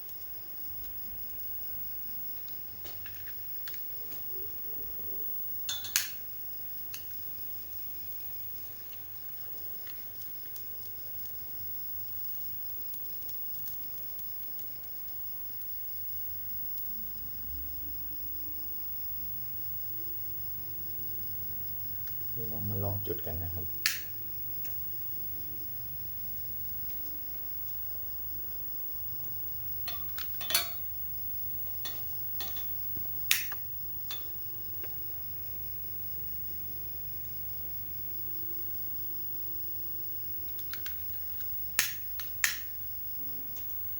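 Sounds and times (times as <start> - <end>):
insects trilling: 0.0 - 43.9
lantern metal clinks and knocks: 5.7 - 6.2, 29.8 - 30.9.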